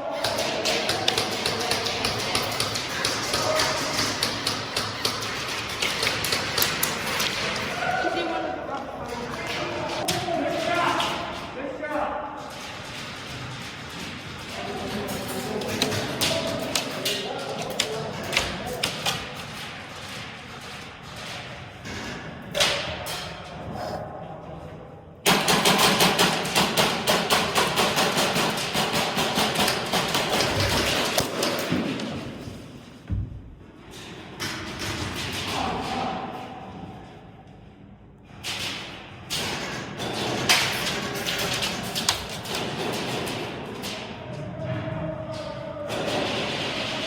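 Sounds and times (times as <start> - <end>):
airsoft guns firing: 0.2 - 8.3, 25.2 - 32.3, 45.9 - 47.0.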